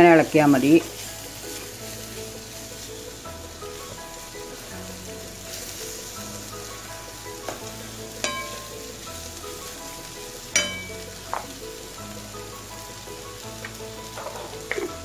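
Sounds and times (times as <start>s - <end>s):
vegetables sizzling in oil: 0.0s - 15.0s
wooden spatula clacking on pan: 7.5s - 8.8s, 10.6s - 11.6s.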